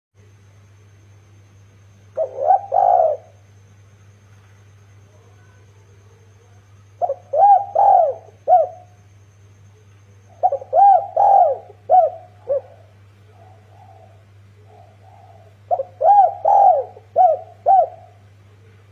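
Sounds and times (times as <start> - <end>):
faint low hum: 0.2 - 18.9
dove cooing: 2.1 - 3.5, 5.1 - 9.1, 10.2 - 18.9.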